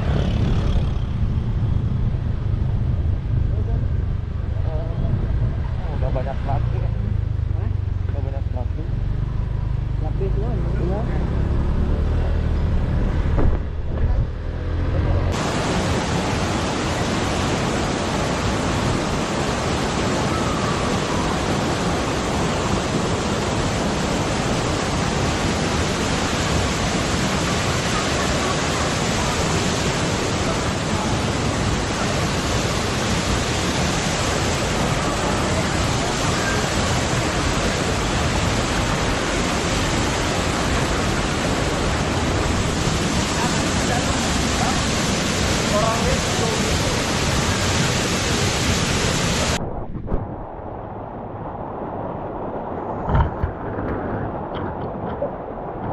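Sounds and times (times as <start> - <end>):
low rumble with bumps: 0.0 - 15.4, 49.6 - 55.9
waterfall rushing: 14.4 - 49.6.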